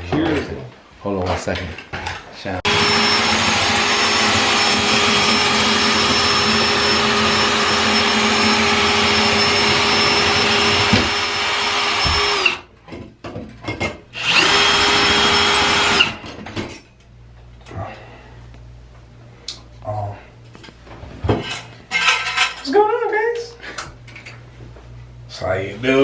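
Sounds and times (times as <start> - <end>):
electric power drill running: 2.7 - 12.7, 14.2 - 16.2.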